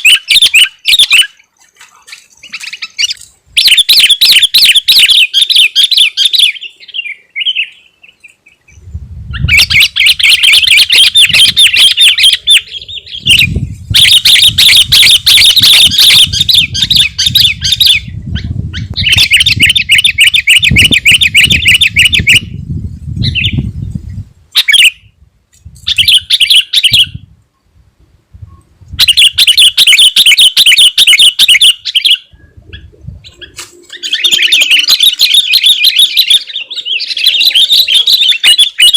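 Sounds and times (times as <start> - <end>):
bird chattering song: 2.1 - 22.5, 29.0 - 38.9.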